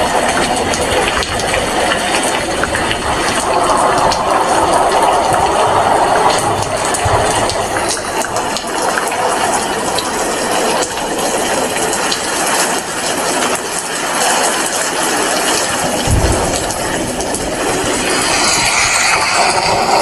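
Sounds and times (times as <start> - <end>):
heavy rain falling: 0.0 - 20.0
low thump: 16.0 - 18.0.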